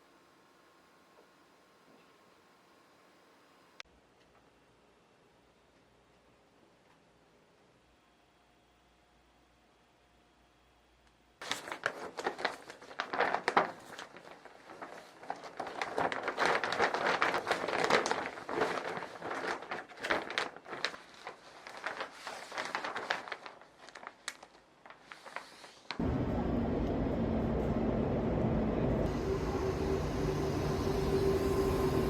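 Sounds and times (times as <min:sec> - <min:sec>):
crinkly rustle with clicks: 0:11.4 - 0:26.0.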